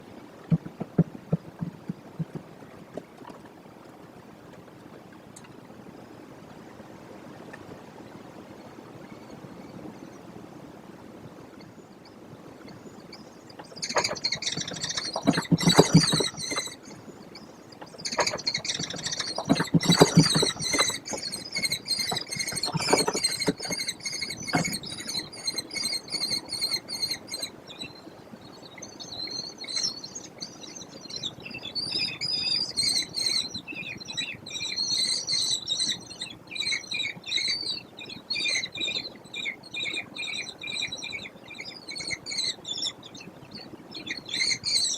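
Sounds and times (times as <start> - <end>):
kestrels calling shrilly: 13.8 - 27.5.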